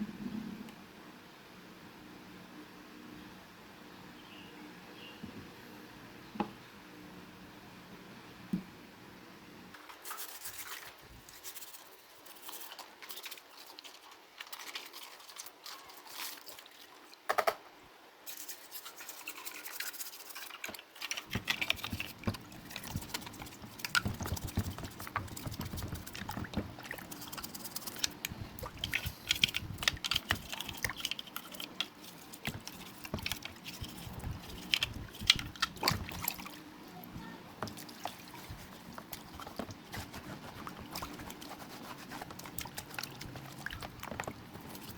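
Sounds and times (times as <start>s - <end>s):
brushing and scraping by hand: 9.9s - 16.6s, 18.3s - 44.9s.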